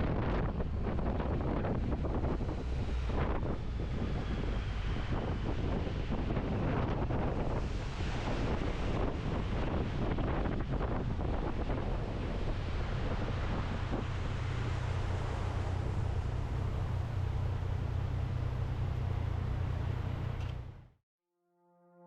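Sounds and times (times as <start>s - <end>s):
wind rushing over microphone: 0.0s - 20.6s
motorbike engine drone: 0.0s - 20.9s.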